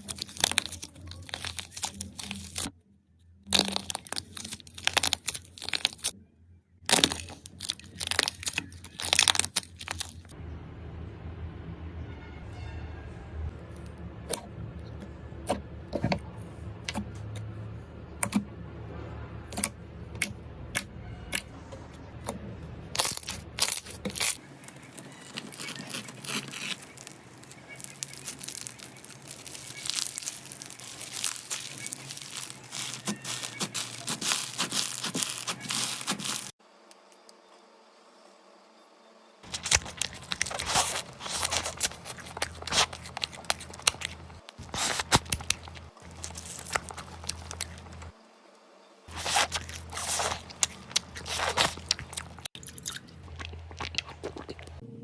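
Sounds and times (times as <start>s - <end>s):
slime crunchy crackling: 0.0s - 2.7s, 3.5s - 6.2s, 6.9s - 10.4s, 22.9s - 36.6s, 39.4s - 48.1s, 49.1s - 54.8s.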